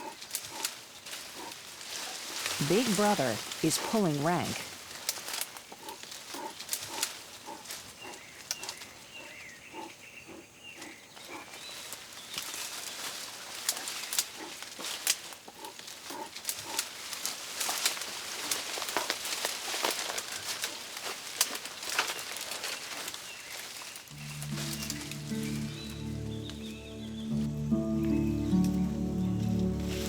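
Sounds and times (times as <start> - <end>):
bears grunting: 0.0 - 1.7, 2.6 - 4.7, 5.7 - 11.6, 13.8 - 17.0
leaves rustling: 0.0 - 9.9, 10.8 - 30.0
twigs crackling: 0.0 - 30.0.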